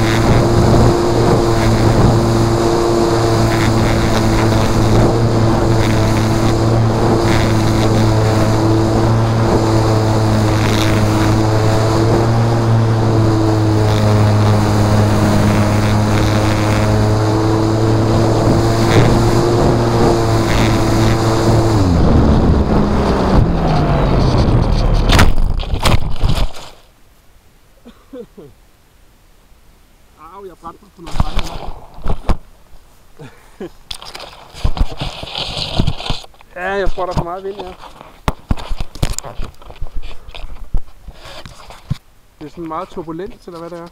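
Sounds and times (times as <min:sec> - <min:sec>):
model plane electric motor buzzing: 0:00.0 - 0:25.1.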